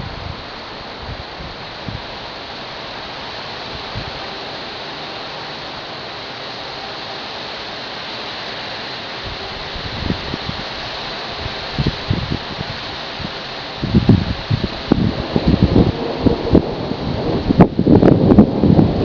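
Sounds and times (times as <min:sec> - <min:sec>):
wind gusts buffeting microphone: 0:00.0 - 0:02.2, 0:03.6 - 0:04.2, 0:09.2 - 0:19.0
heavy rain pouring: 0:00.0 - 0:19.0.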